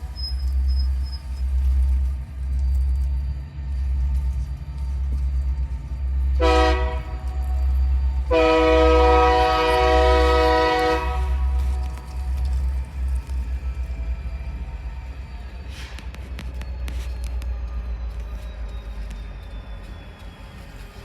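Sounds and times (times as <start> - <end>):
locomotive air horn blasts: 6.4 - 7.3, 8.3 - 11.9.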